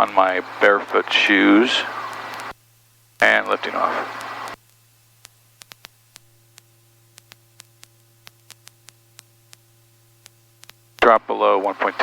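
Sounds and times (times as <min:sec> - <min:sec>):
faint steady tone: 0:00.0 - 0:05.4
faint electrical hum: 0:00.0 - 0:12.0
light static: 0:00.0 - 0:12.0
sharp clicks: 0:01.8 - 0:02.5, 0:03.4 - 0:04.6.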